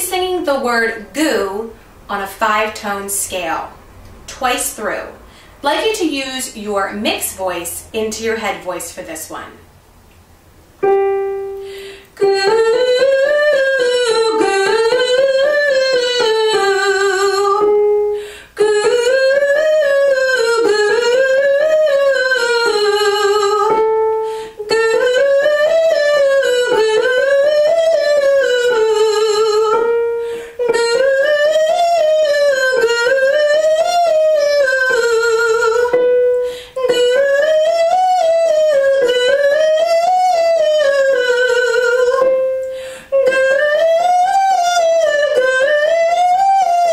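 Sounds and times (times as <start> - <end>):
woman singing vocal warm-up scale: 0.0 - 9.7, 10.8 - 46.9
breaths between phrases: 5.2 - 5.6.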